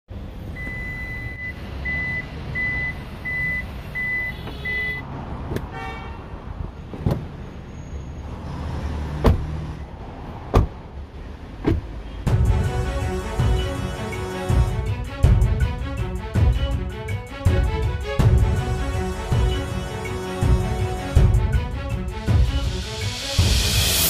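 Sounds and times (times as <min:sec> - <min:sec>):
car warning chime beeping: 0:00.5 - 0:05.0.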